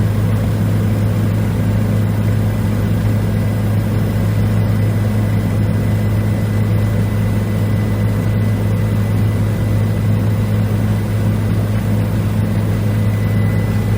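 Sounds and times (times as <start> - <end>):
helicopter rotor and engine drone: 0.0 - 13.9
high-pitched whine: 12.3 - 13.9.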